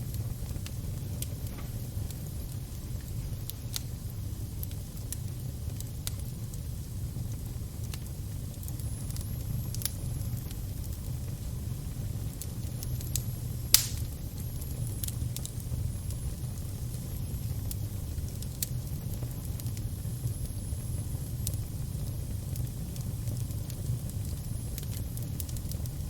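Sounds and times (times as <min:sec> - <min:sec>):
fire crackles and pops: 0:00.0 - 0:26.0
fire rumbling: 0:00.0 - 0:26.0.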